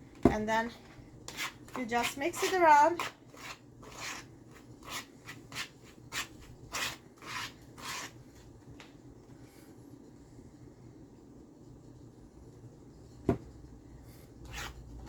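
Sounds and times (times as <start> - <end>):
spoon scraping a bowl: 1.3 - 8.2.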